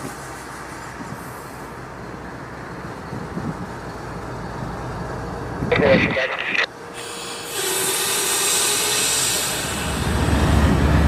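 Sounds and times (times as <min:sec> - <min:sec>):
train wheels rumbling: 0:06.8 - 0:11.0.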